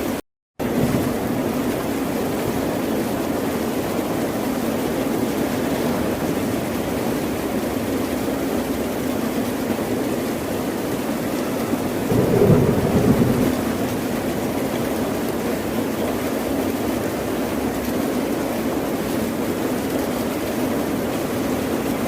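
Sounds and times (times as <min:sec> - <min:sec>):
ocean surf roar: 0:11.3 - 0:15.3.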